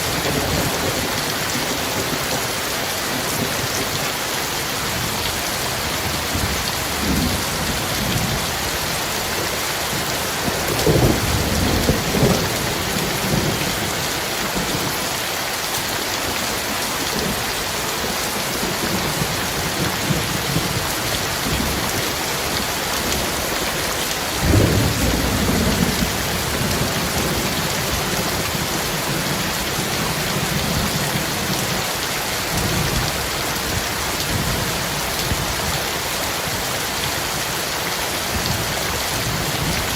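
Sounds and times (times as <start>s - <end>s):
heavy rain on metal roof: 0.0s - 39.9s
thunder rumbling: 9.9s - 14.0s, 24.3s - 31.8s.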